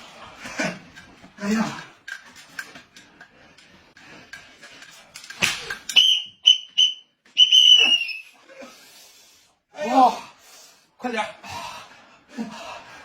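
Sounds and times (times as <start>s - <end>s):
high whistle toots: 5.9s - 8.4s.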